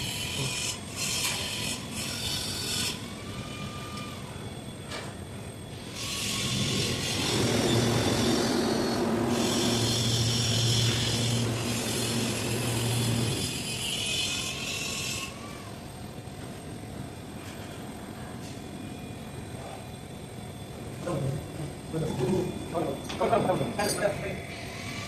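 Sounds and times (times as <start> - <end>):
compressor motor hum: 5.6 - 16.0
air compressor hissing: 6.0 - 13.6.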